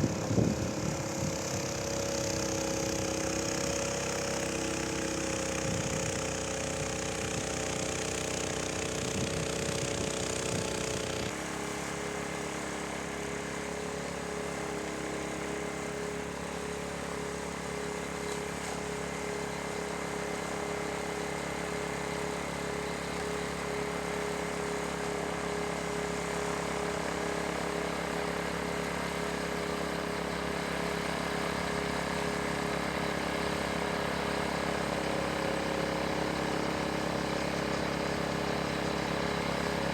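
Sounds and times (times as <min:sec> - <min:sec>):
snowblower engine running: 0:00.0 - 0:39.9.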